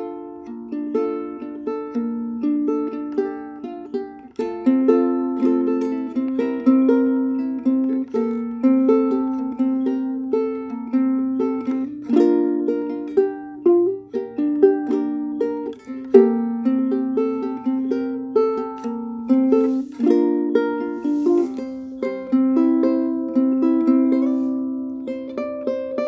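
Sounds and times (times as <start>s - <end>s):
ukulele fingerpicked melody: 0.0s - 26.0s.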